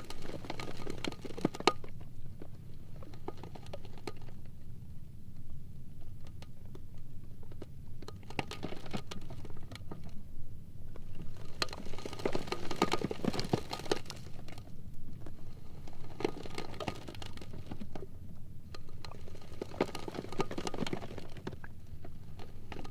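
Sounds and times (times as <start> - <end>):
ice floes rumbling: 0.0 - 4.5, 10.9 - 22.9
ice ticking and cracking: 0.0 - 4.5, 11.0 - 18.1, 18.7 - 22.9.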